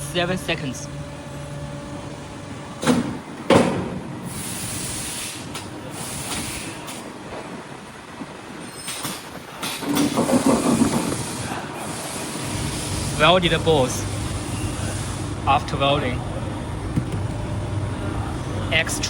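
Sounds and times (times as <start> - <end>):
air hissing: 4.2 - 7.1, 8.9 - 15.8.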